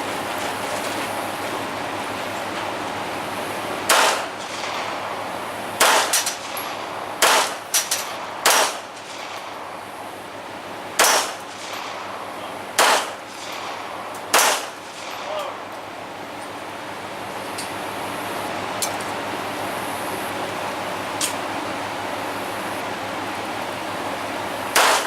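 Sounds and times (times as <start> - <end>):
gunshots with echo: 3.9 - 9.8, 11.0 - 15.7, 24.8 - 25.0.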